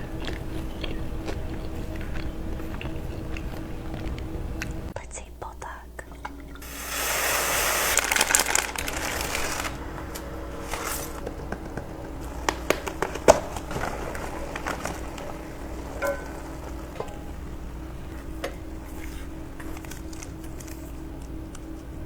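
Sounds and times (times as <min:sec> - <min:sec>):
crinkling rustling: 0:00.0 - 0:04.9, 0:07.4 - 0:22.0
crackles and sharp clicks: 0:07.9 - 0:22.0.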